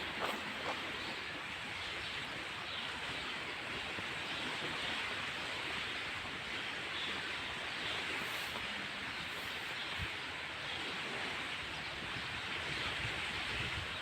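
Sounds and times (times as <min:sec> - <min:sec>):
steady rushing hiss: 0:07.2 - 0:10.5.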